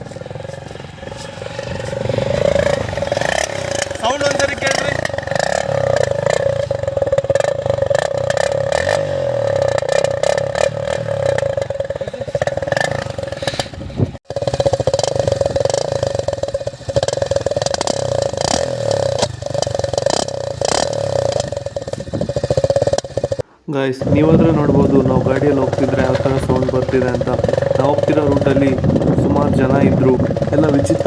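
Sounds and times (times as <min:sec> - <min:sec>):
motorcycle engine buzzing: 0:00.0 - 0:31.0.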